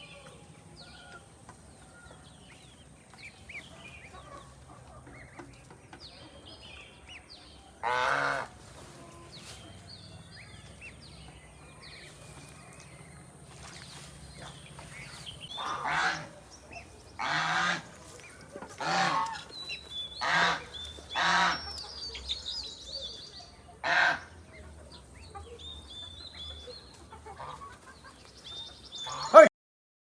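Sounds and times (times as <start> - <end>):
small birds chirping: 0.0 - 29.5
large bird honking: 7.8 - 9.5, 15.5 - 16.4, 17.2 - 18.0, 18.8 - 19.5, 20.2 - 21.7, 23.8 - 24.4, 29.0 - 29.5.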